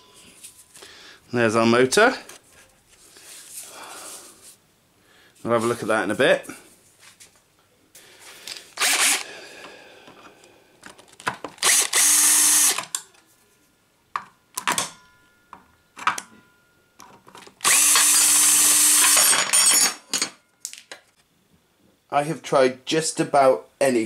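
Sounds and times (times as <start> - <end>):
power drill running: 8.8 - 9.3, 11.6 - 12.9, 17.6 - 20.0.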